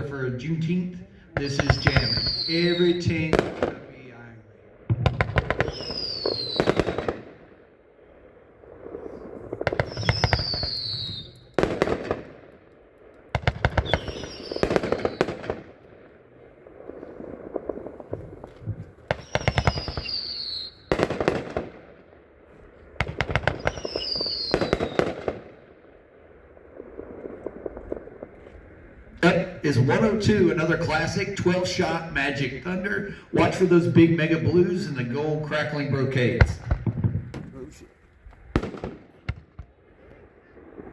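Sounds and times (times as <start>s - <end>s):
firework cracks and bangs: 1.4s - 3.8s, 4.9s - 7.5s, 8.7s - 26.2s, 36.2s - 37.7s, 38.3s - 39.8s
falling firework whistle: 1.6s - 3.2s, 5.4s - 7.1s, 9.0s - 11.6s, 13.7s - 15.5s, 19.1s - 21.3s, 23.4s - 25.2s.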